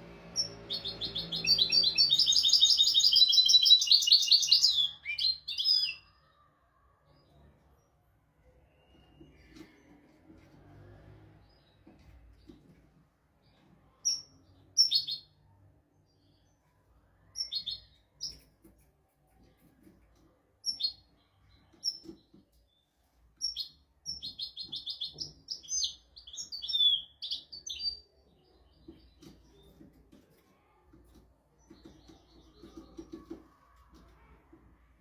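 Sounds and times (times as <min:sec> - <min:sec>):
goldfinch chirping and twittering: 0:00.4 - 0:06.0.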